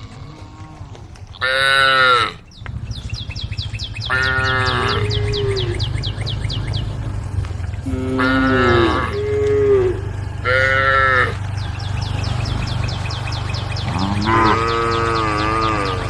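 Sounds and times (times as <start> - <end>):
cows mooing: 0.0 - 2.5, 3.7 - 16.0
low rumble: 0.0 - 16.0
high chirps: 1.2 - 16.0.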